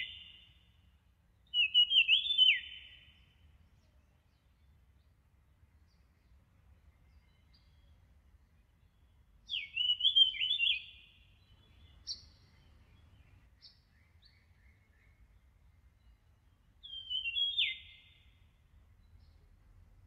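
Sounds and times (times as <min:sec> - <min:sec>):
bird chirp: 0:00.0 - 0:20.0
songbird singing falling notes: 0:01.5 - 0:03.3, 0:09.5 - 0:16.2, 0:16.8 - 0:19.4.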